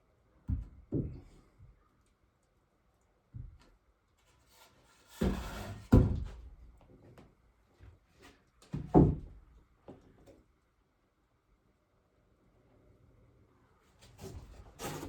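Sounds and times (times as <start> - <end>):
wooden knocks and clunks: 0.5 - 1.3, 8.7 - 9.4
wood scraping: 14.0 - 15.0.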